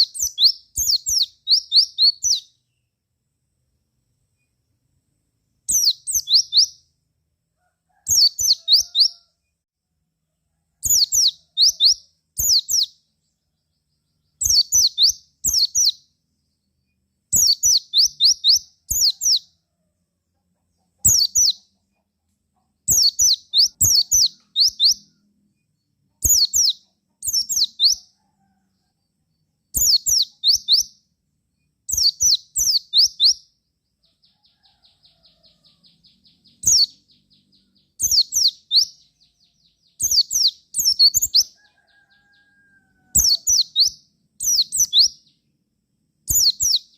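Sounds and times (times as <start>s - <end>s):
bird high chirps: 0.0s - 3.0s, 5.6s - 6.9s, 7.9s - 9.3s, 10.8s - 19.6s, 20.7s - 22.0s, 22.6s - 28.6s, 29.6s - 31.1s, 31.9s - 45.5s, 46.3s - 46.9s.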